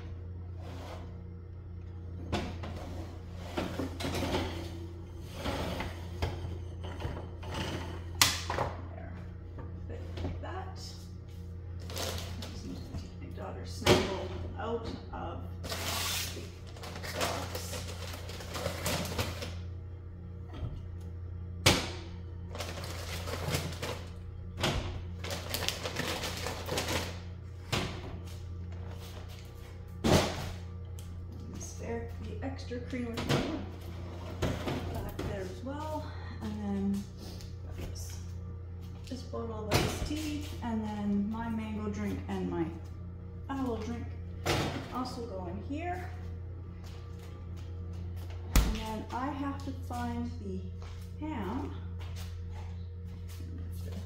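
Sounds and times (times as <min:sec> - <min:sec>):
steady low hum: 0:00.0 - 0:54.0
items clattering on fridge shelf: 0:02.3 - 0:08.8, 0:15.6 - 0:19.6, 0:21.6 - 0:28.2, 0:32.8 - 0:36.0
packages rustling and clattering: 0:22.5 - 0:24.1.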